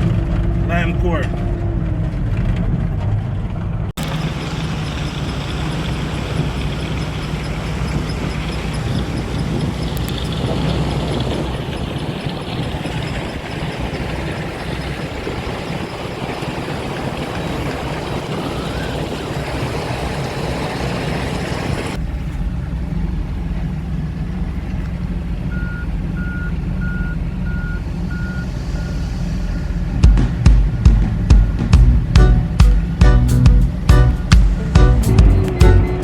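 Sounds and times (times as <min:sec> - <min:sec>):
truck engine running: 0:00.0 - 0:36.0
reversing alarm beeping: 0:25.5 - 0:29.8.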